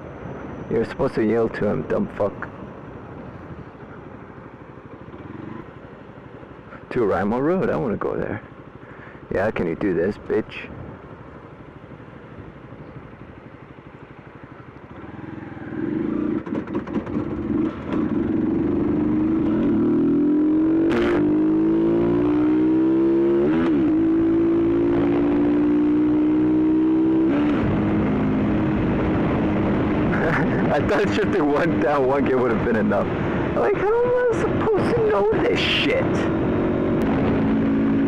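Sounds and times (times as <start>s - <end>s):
motorcycle engine accelerating: 2.7s - 6.4s, 12.6s - 38.0s.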